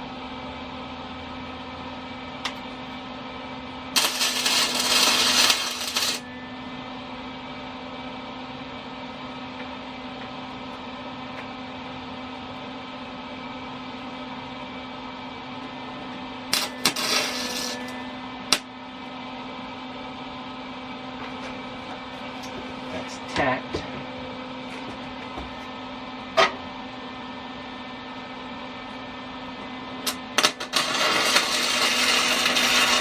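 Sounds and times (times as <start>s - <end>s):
electrical hum of welding equipment: 0.0s - 33.0s
loud burst of noise: 3.9s - 6.2s.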